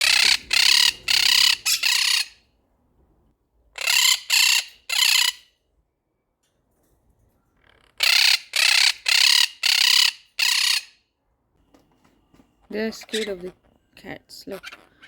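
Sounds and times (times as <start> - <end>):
parrots screeching: 0.0 - 2.5, 3.7 - 5.6, 7.6 - 11.0, 13.0 - 13.6, 14.5 - 15.0.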